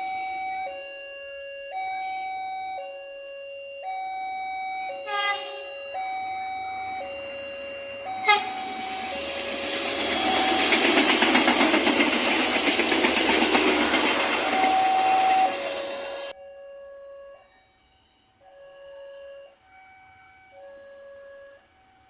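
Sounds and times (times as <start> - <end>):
two-tone crossing alarm: 0.0 - 22.0
train wheels rushing on rails: 6.6 - 16.4.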